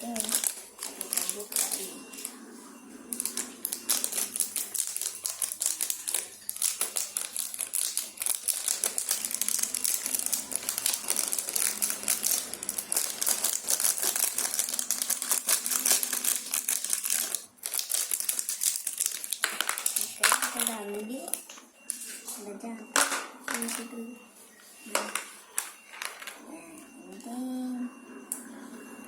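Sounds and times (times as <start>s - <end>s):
packaging crinkling and clicking: 0.0s - 2.3s, 3.1s - 21.6s
scissors cutting plastic packaging: 0.0s - 2.3s, 3.1s - 21.5s.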